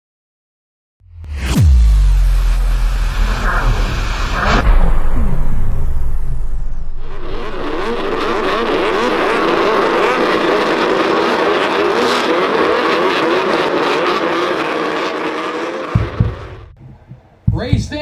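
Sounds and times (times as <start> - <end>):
falling sweep: 1.2 - 16.8
snowmobile engines racing: 7.1 - 16.7.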